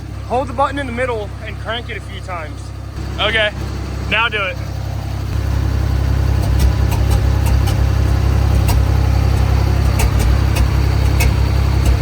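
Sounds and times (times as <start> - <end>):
boat engine running: 0.0 - 12.0
sharp clicks: 6.3 - 12.0.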